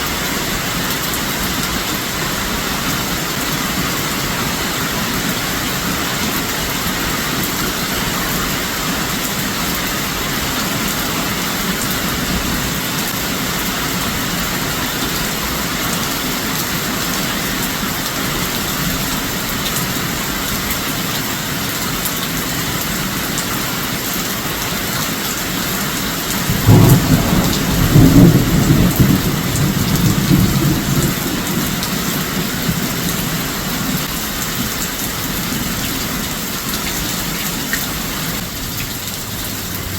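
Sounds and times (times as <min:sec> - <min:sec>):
heavy rain downpour: 0:00.0 - 0:39.9
low rumble of thunder: 0:26.5 - 0:32.8.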